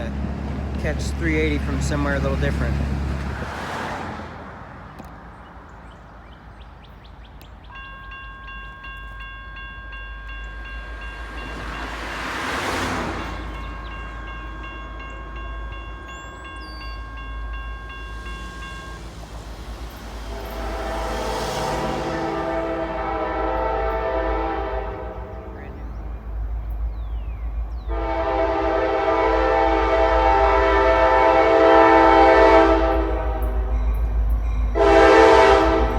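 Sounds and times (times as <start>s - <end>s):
railroad crossing bell ringing: 7.6s - 26.0s, 27.9s - 35.9s.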